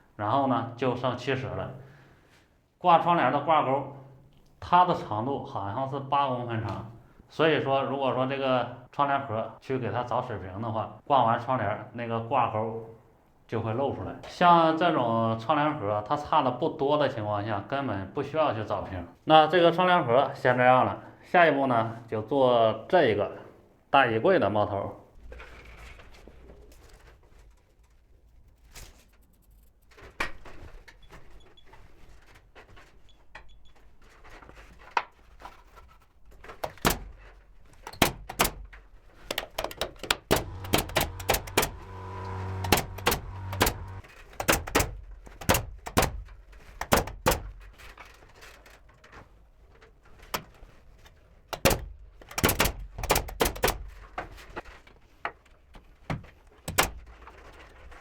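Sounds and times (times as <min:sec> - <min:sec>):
sharp knocks and bangs on boards: 0:36.6 - 0:37.3, 0:38.0 - 0:47.7, 0:51.6 - 0:54.3, 0:56.7 - 0:57.1
steady machine hum: 0:40.3 - 0:44.0.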